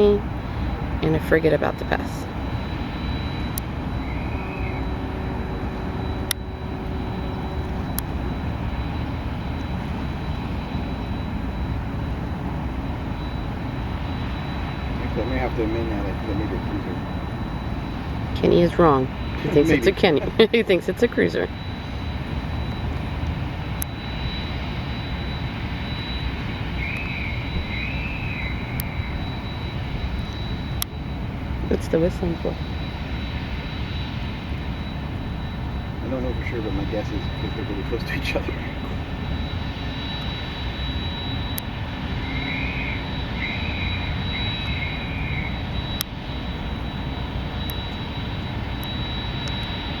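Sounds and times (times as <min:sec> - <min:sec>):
low rumble: 0:00.0 - 0:50.0
ship whistle: 0:03.0 - 0:09.6.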